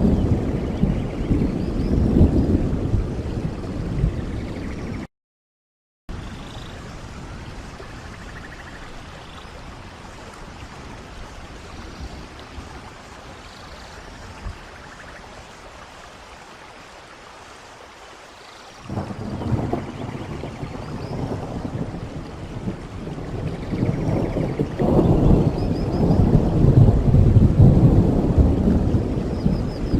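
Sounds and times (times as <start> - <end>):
rain: 0.0 - 5.1, 6.1 - 29.9
deep rush of water: 6.1 - 29.9.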